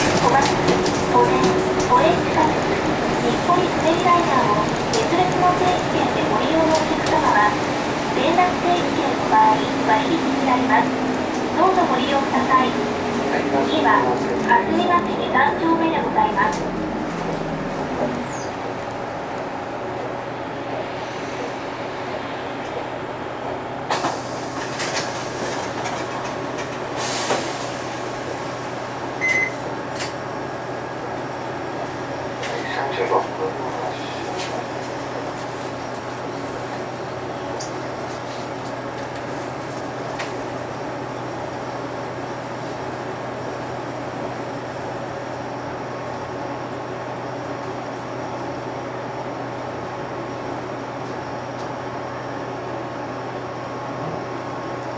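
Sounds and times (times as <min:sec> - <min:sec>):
road noise: 0:00.0 - 0:22.6
diesel engine hum: 0:00.0 - 0:23.9
bus diesel engine hum: 0:00.0 - 0:54.9.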